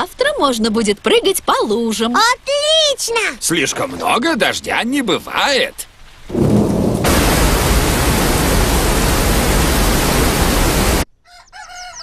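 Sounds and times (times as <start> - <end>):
heavy rain hiss: 3.6 - 11.1.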